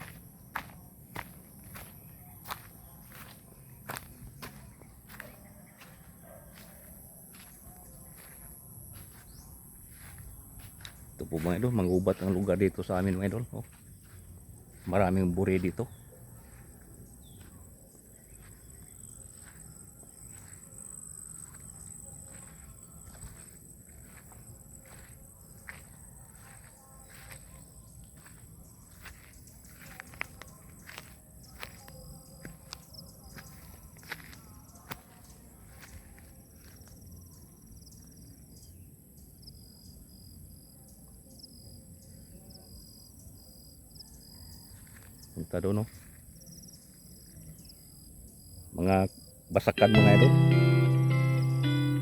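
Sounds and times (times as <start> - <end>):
footsteps on forest path: 0.0 - 37.2, 45.9 - 46.3
insects droning: 0.0 - 52.0.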